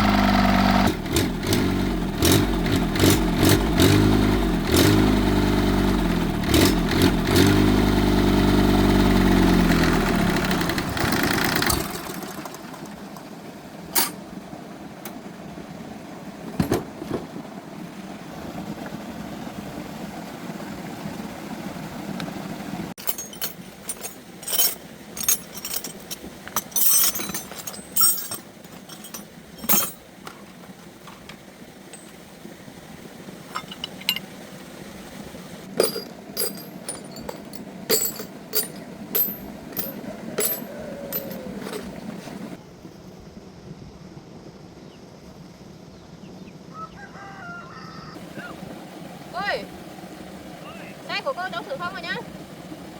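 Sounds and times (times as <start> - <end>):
engine running: 0.0 - 43.6
metallic clinks and taps: 23.0 - 30.0, 33.5 - 34.2, 35.8 - 42.0.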